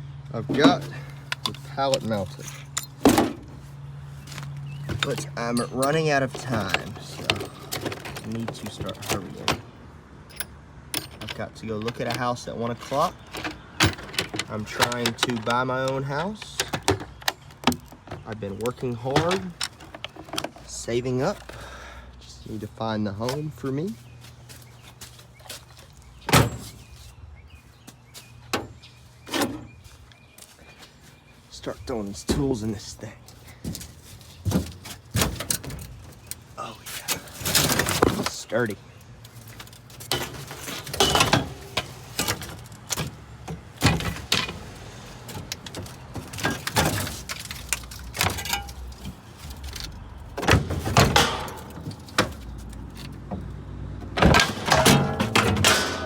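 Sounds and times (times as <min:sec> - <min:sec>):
metal hand tools clanking: 0:00.4 - 0:03.6, 0:04.7 - 0:09.7, 0:10.3 - 0:21.7, 0:39.4 - 0:50.0, 0:50.8 - 0:53.3, 0:54.0 - 0:56.0.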